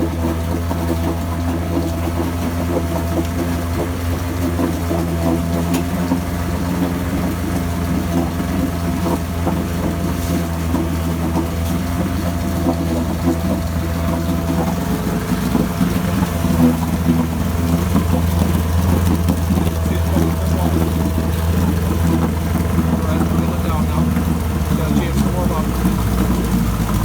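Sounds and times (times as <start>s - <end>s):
outboard motor running: 0.0s - 27.0s.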